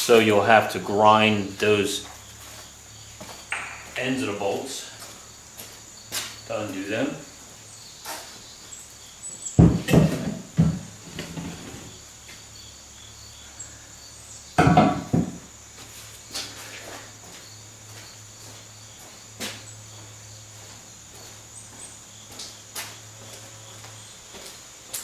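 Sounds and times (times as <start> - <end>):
parts knocking and clattering: 3.5 - 4.0, 9.6 - 11.6, 14.6 - 15.5.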